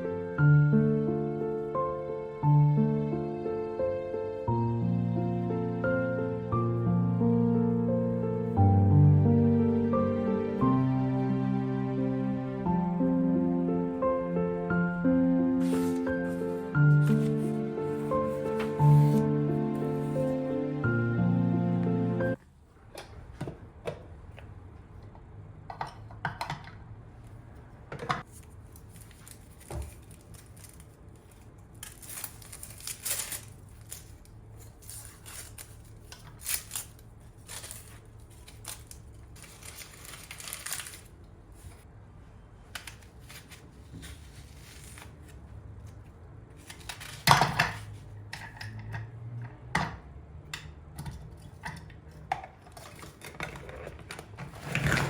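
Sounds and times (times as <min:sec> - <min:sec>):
scraping or rustling: 0:28.2 - 0:41.9, 0:52.7 - 0:55.0.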